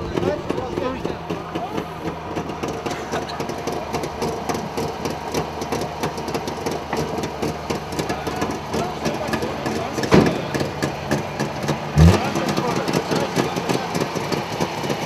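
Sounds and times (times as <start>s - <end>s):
car engine idling: 0.0s - 15.0s
thump: 10.1s - 10.5s.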